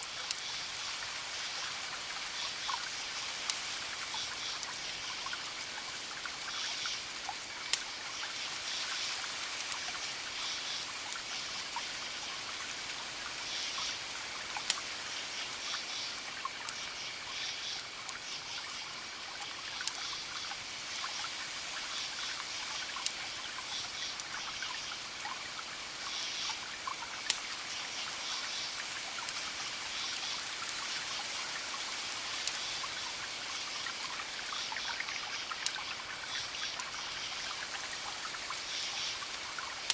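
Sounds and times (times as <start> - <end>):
campfire crackling: 0.1 - 39.9
crickets chirping: 0.2 - 39.9.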